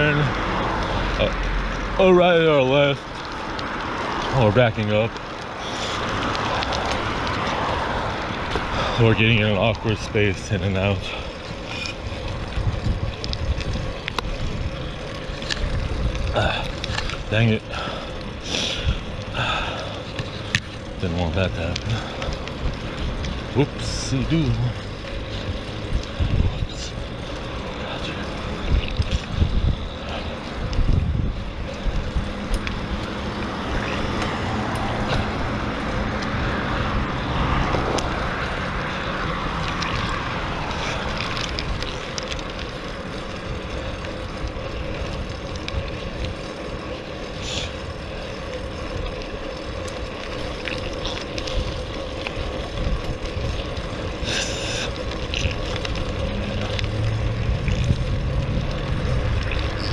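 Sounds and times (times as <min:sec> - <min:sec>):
road and tyre noise: 0:00.0 - 0:59.9
wind rushing over microphone: 0:11.9 - 0:42.6, 0:51.5 - 0:59.9.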